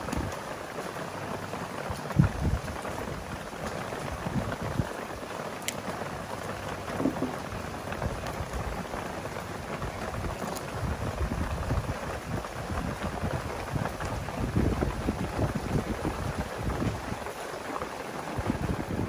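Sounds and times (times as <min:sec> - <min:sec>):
rain falling: 0:00.0 - 0:19.0
low thumps: 0:07.0 - 0:07.5.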